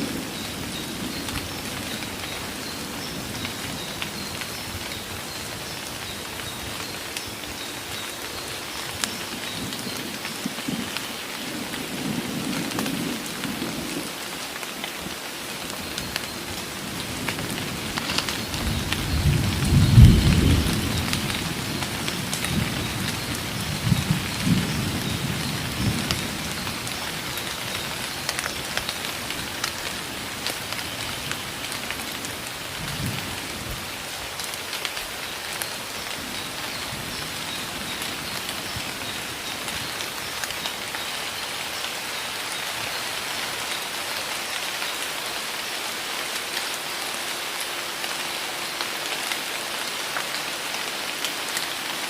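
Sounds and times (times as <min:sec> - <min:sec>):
heavy rain pouring: 0:00.0 - 0:52.0
thunder rumbling: 0:16.4 - 0:27.3.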